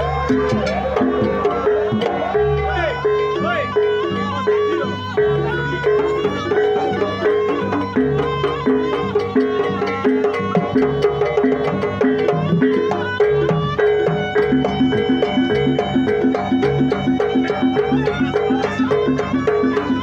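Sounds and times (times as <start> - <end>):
percussion ensemble playing: 0.0 - 20.0
wavering melody: 0.0 - 20.0.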